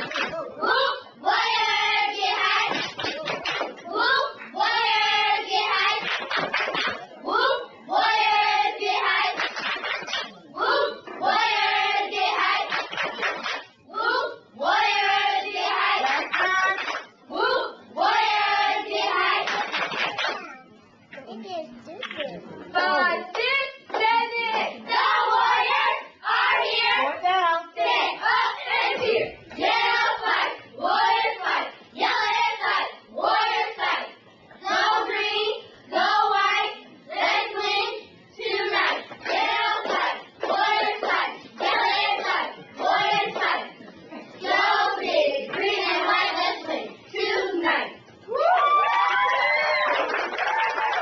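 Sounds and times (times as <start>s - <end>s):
hand claps: 0.0s - 0.4s, 2.7s - 3.8s, 6.0s - 7.1s, 9.3s - 10.4s, 12.7s - 13.7s, 16.1s - 17.1s, 19.4s - 20.5s
cheerleaders chanting in unison: 0.0s - 20.3s, 22.7s - 48.5s.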